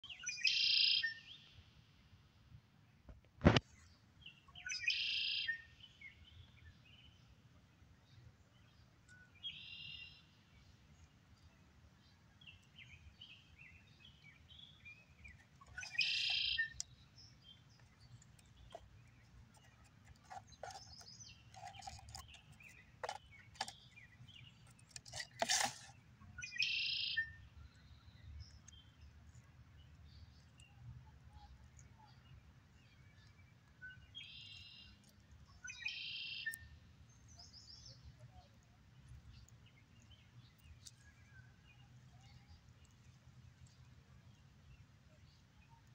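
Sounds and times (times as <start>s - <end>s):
wild bird singing: 0.0s - 1.5s, 4.2s - 7.2s, 12.1s - 29.1s, 30.2s - 44.4s.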